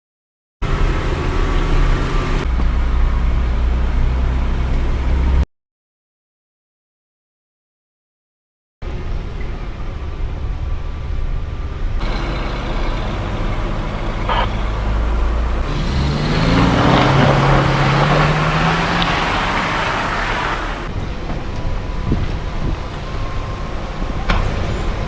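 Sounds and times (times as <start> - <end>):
wind and road noise: 0.6 - 5.4, 8.8 - 25.0
off-road vehicle engine revving: 12.0 - 25.0.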